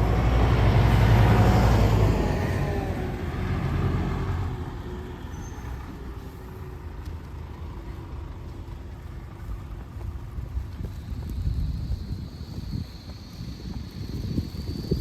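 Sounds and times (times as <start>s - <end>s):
vehicle driving past: 0.0s - 9.8s
street noise rumble: 0.0s - 15.0s.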